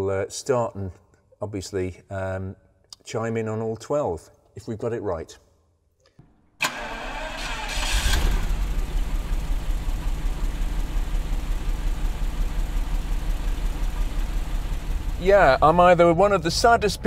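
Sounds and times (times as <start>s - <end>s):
car engine starting and idling: 6.6s - 17.0s.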